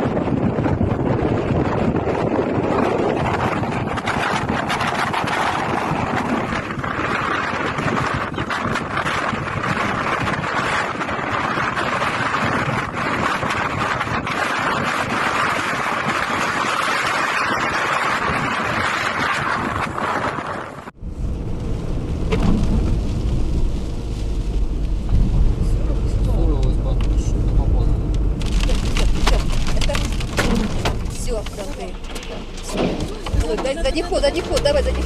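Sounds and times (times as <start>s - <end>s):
strong wind on microphone: 0.0s - 35.0s.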